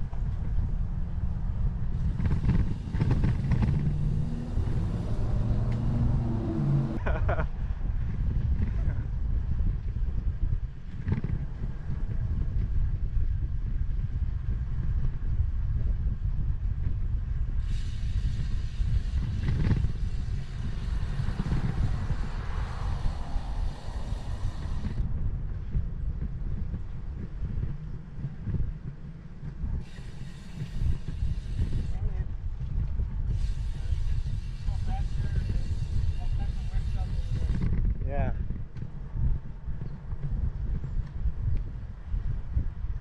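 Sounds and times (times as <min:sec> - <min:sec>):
bicycle rolling on pavement: 0:00.0 - 0:43.0
wind buffeting microphone: 0:00.0 - 0:43.0
riding noise hiss: 0:17.6 - 0:25.0, 0:29.8 - 0:32.3, 0:33.3 - 0:37.8.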